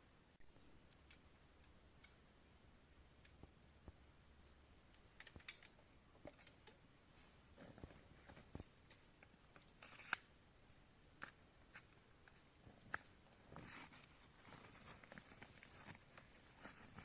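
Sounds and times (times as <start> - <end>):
faint small clicks and taps: 0.5 - 2.2, 3.2 - 10.2.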